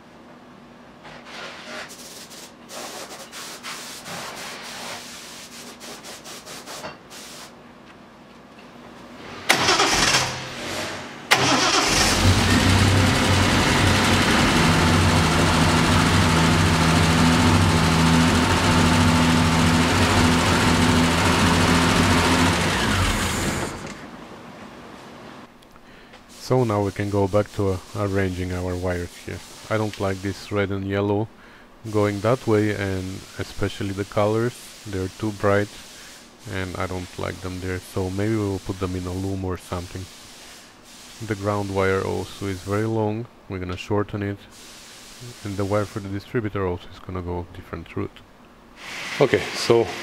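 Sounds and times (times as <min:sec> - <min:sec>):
starter motor cranking: 0:09.5 - 0:24.0
car engine idling: 0:11.4 - 0:23.9.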